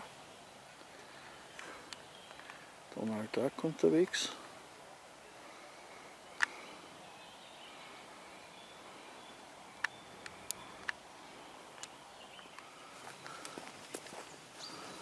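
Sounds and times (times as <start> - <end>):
faint bird calls: 4.3 - 15.0
sharp clicks: 6.4 - 6.6, 9.8 - 11.0.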